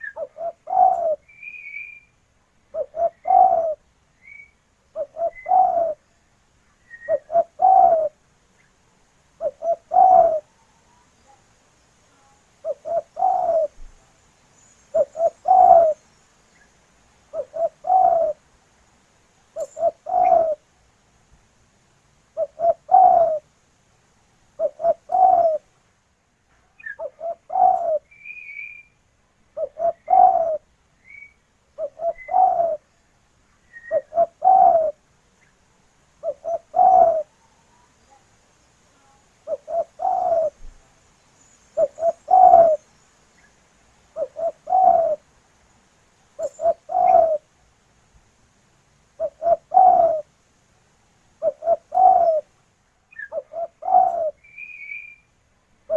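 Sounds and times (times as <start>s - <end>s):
dove cooing: 0.0s - 2.0s, 2.7s - 6.1s, 6.9s - 8.2s, 9.4s - 11.4s, 12.6s - 14.0s, 14.9s - 16.0s, 17.3s - 18.4s, 19.6s - 20.7s, 22.4s - 23.5s, 24.6s - 25.7s, 26.8s - 28.7s, 29.6s - 30.7s, 31.8s - 32.9s, 33.7s - 35.0s, 36.2s - 37.9s, 39.4s - 40.8s, 41.7s - 42.9s, 44.1s - 45.3s, 46.4s - 47.5s, 49.2s - 50.3s, 51.4s - 52.5s, 53.2s - 55.1s
small bird chirping: 0.0s - 8.8s, 9.4s - 18.4s, 19.5s - 20.6s, 22.4s - 23.4s, 24.6s - 25.6s, 26.7s - 29.0s, 29.6s - 35.6s, 36.2s - 45.2s, 46.4s - 47.4s, 49.2s - 50.2s, 51.4s - 52.4s, 53.1s - 55.4s.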